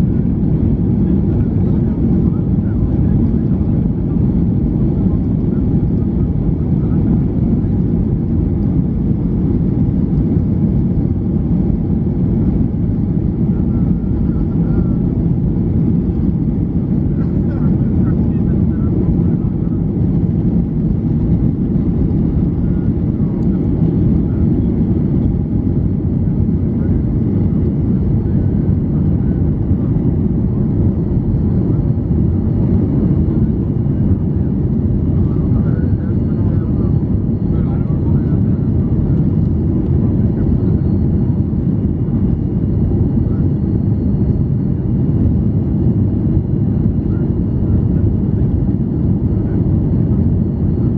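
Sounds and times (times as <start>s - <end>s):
jet engine cabin rumble: 0.0s - 50.9s.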